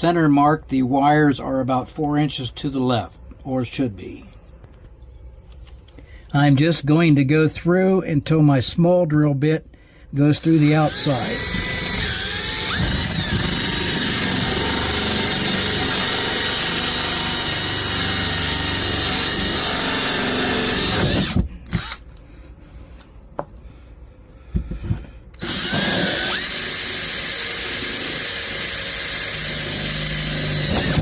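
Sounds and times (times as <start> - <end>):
power drill drilling: 10.4 - 22.0, 25.4 - 31.0.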